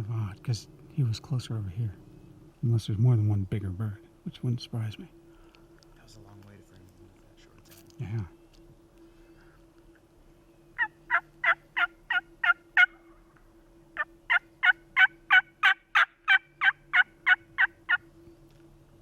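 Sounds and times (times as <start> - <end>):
turkey call hen yelps: 10.8 - 13.2, 14.0 - 18.1.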